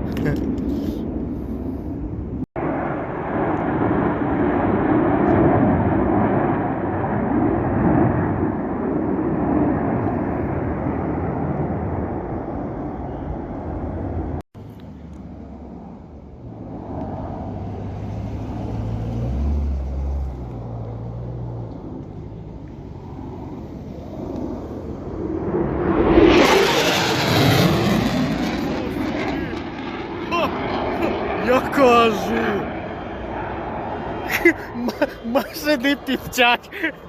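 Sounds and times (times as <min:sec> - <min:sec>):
fighter jet roaring overhead: 0:00.0 - 0:37.0
low rumble with steady hum: 0:19.9 - 0:31.4.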